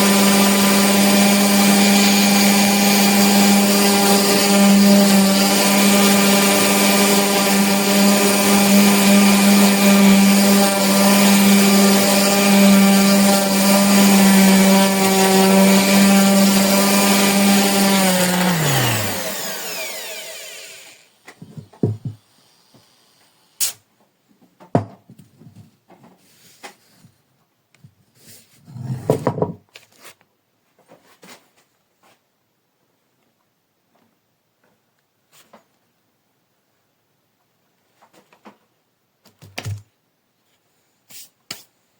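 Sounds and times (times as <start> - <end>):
orbital sander whine: 0.0 - 21.1.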